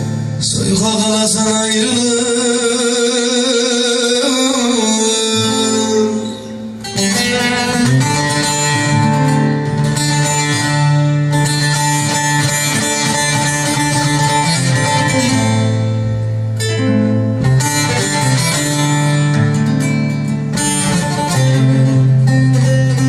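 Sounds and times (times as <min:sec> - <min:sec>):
plucked lute and guitar: 0:00.0 - 0:23.0.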